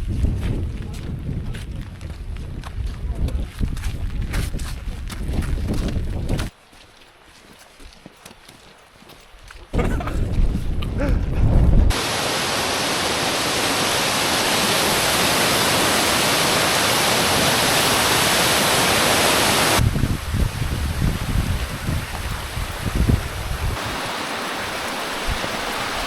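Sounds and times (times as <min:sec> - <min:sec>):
waterfall rushing: 0:11.9 - 0:26.0.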